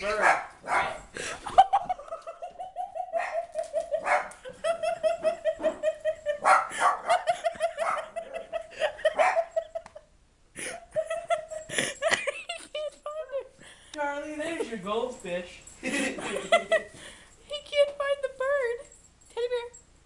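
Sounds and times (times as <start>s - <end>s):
dog yipping excitedly: 0.1s - 1.0s, 2.9s - 4.5s, 6.4s - 8.2s, 9.1s - 9.5s.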